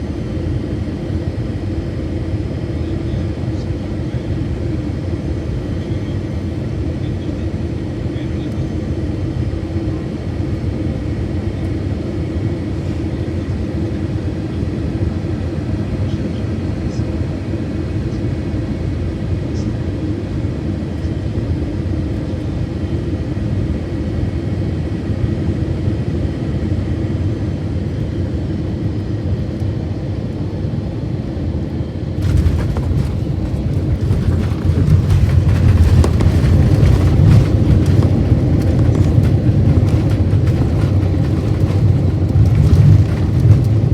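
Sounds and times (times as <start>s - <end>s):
airplane cabin hum: 31.8s - 43.9s
deep rough rumble with hiss: 32.2s - 43.9s.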